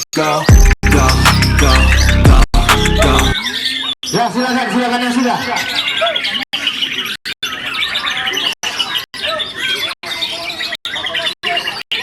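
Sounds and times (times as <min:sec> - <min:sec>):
birds singing: 0:00.0 - 0:12.0.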